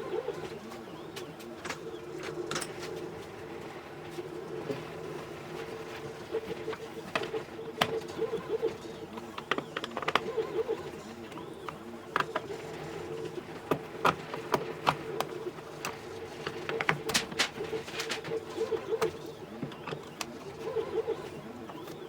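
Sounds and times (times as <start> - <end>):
hand tools clicking and tapping: 9.3 - 10.3.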